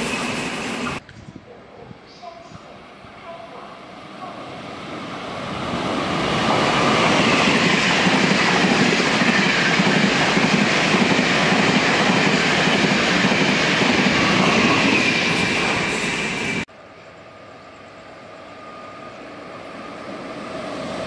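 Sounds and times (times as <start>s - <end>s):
train passing at high speed: 0.0s - 1.0s, 2.8s - 21.0s.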